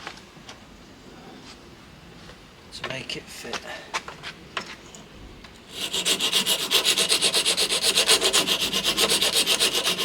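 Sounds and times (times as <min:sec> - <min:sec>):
hand file rasping: 0:05.7 - 0:10.0.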